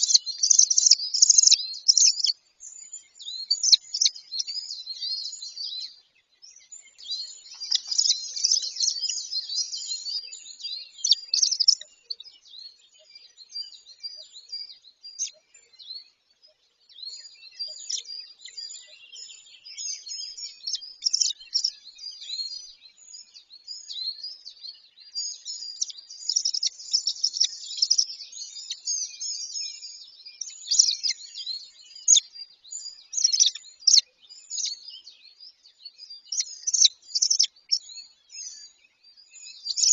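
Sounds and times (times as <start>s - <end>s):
high-pitched bird chirps: 0.0s - 2.4s, 3.0s - 5.8s, 6.8s - 10.2s, 10.9s - 12.2s, 20.0s - 22.7s, 25.3s - 34.9s, 36.2s - 37.9s, 39.5s - 39.9s.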